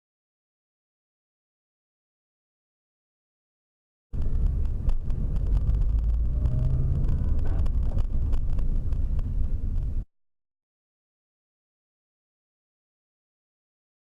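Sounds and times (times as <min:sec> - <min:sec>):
car engine and road noise: 0:04.2 - 0:10.1.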